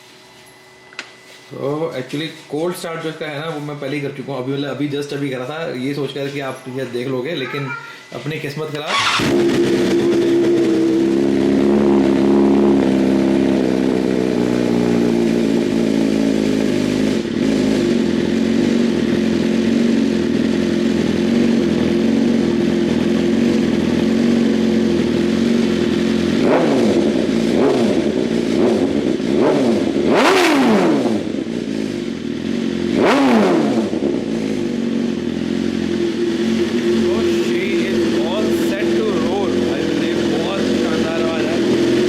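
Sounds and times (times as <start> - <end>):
motorcycle engine idling: 8.9 - 30.4, 31.0 - 42.0
motorcycle throttle revs: 8.9 - 42.0.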